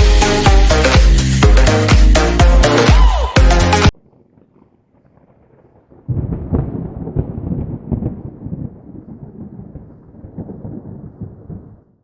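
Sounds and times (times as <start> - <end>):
thunderclap crackling and rumbling: 3.9 - 12.0.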